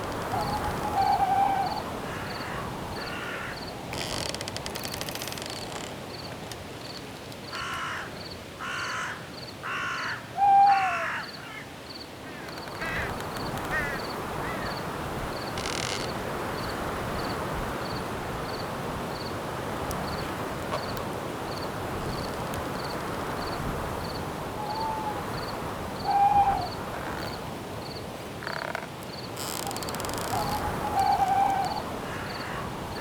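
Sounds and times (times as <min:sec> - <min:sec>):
crickets chirping: 0:00.0 - 0:33.0
wind in branches: 0:00.0 - 0:33.0.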